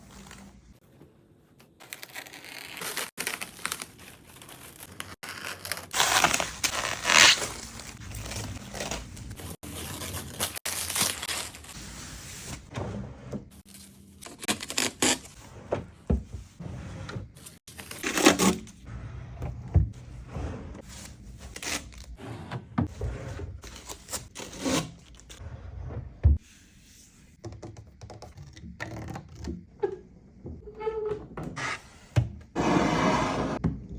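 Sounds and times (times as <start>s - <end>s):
packaging tearing and crumpling: 1.8s - 11.8s.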